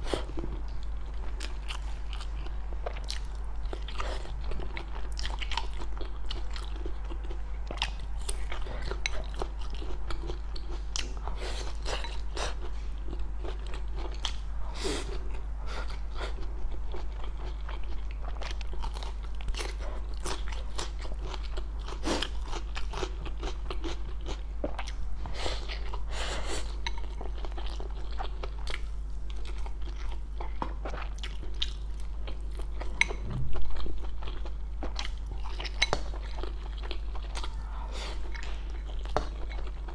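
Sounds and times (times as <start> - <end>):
crunchy food chewing: 0.0 - 39.9
steady low hum: 0.0 - 39.9.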